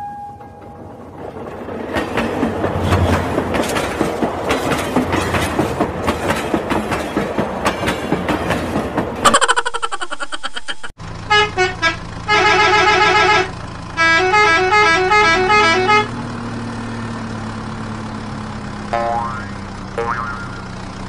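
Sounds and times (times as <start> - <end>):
low engine-like hum: 11.0 - 21.0
melodic horn-like honks: 11.3 - 16.1.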